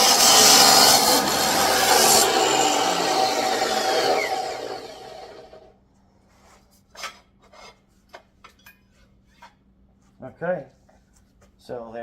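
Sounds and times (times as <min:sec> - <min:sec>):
chop saw grinding metal: 0:00.0 - 0:05.6.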